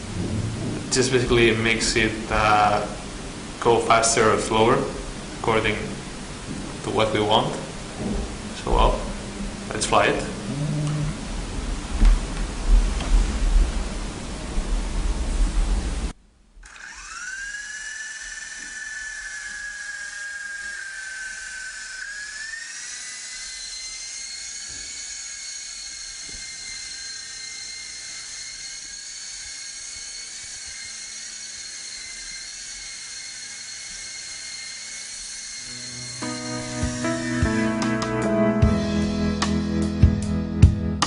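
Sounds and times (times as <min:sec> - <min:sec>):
toy helicopter motors whining: 0:16.6 - 0:37.3.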